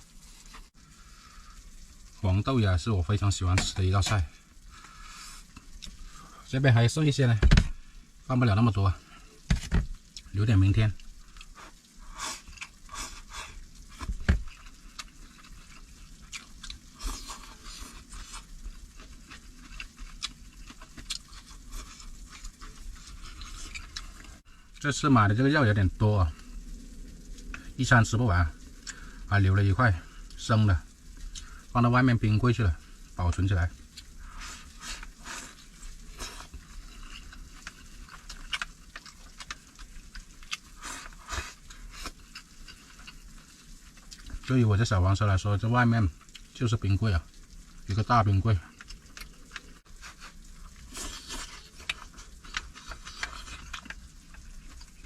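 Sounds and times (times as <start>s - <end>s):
person chewing: 5.1s - 6.0s, 11.0s - 24.8s, 28.7s - 29.2s, 33.8s - 44.5s, 48.7s - 55.0s.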